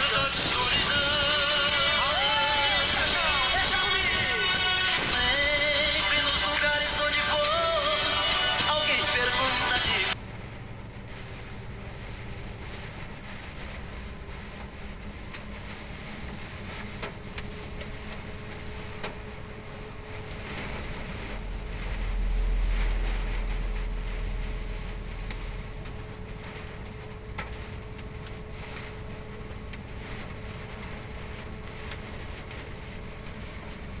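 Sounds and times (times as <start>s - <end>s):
rain and wind on truck cab: 0.0s - 34.0s.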